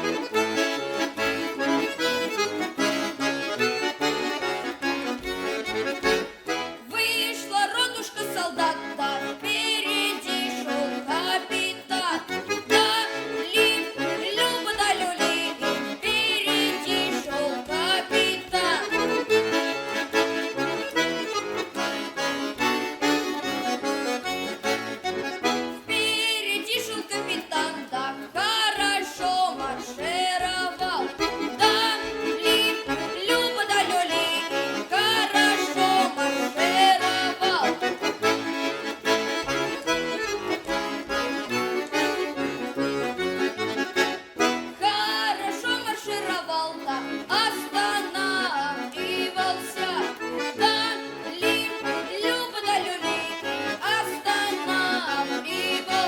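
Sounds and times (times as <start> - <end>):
accordion folk song: 0.0 - 56.0
person singing: 6.8 - 19.1, 25.8 - 38.2, 44.7 - 56.0.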